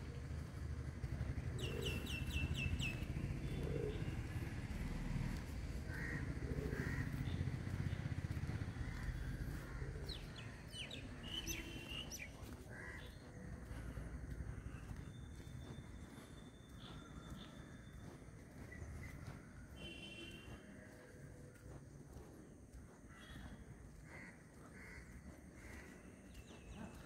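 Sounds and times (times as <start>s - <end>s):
small birds chirping: 1.5s - 4.2s, 6.0s - 27.0s.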